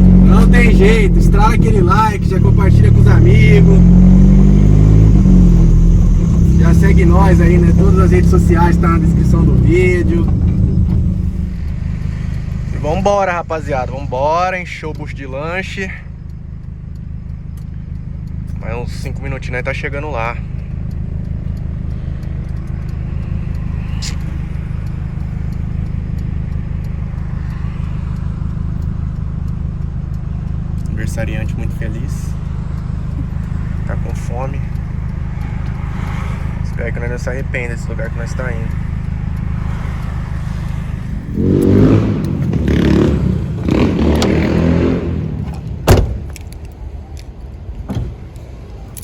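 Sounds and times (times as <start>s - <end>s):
deep bass beat: 0.0s - 47.0s
car road and engine noise: 0.0s - 49.0s
sharp thump: 45.8s - 46.4s.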